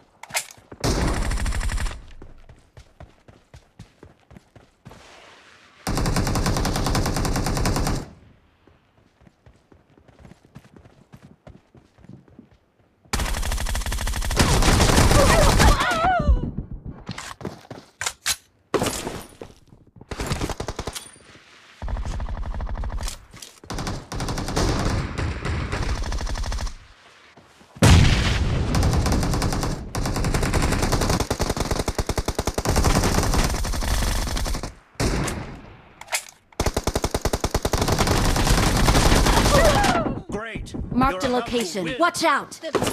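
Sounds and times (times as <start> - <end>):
video game automatic gunfire: 23.7 - 26.8, 28.7 - 34.7, 36.6 - 39.8.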